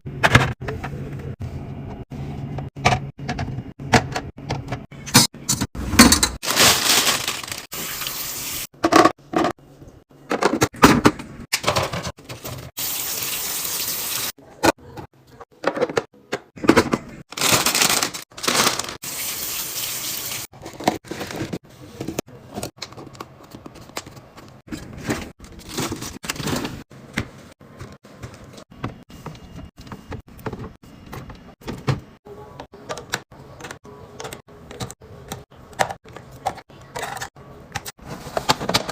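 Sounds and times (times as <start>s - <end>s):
water running: 7.3s - 8.7s, 12.5s - 14.4s, 18.6s - 20.9s.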